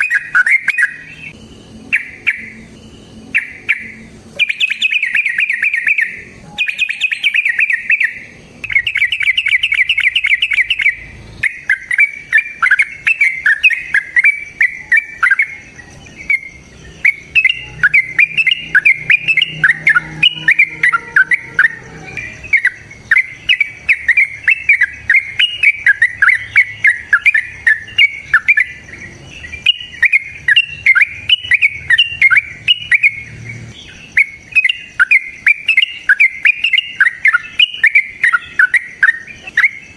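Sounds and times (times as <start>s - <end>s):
lovebird trilling and chirping: 0.0s - 39.9s.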